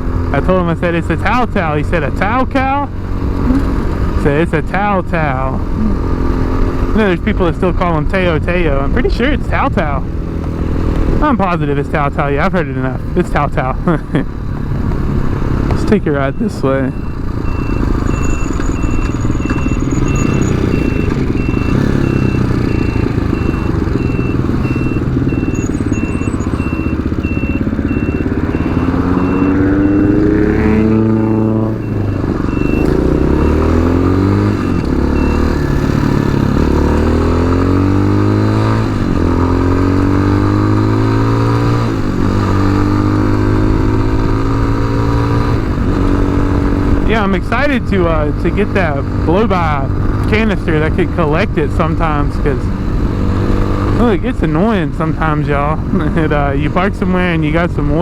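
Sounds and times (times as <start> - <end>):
motorcycle engine revving: 0.0 - 58.0
high beep: 16.1 - 35.7.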